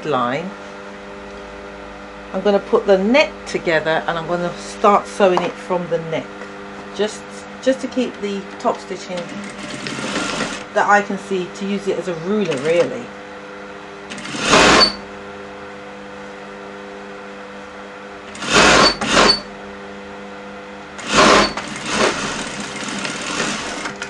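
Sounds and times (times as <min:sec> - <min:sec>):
steady hum: 0:00.0 - 0:24.0
sewing machine stitching: 0:09.4 - 0:10.7, 0:14.1 - 0:15.0, 0:18.3 - 0:19.4, 0:21.0 - 0:24.0.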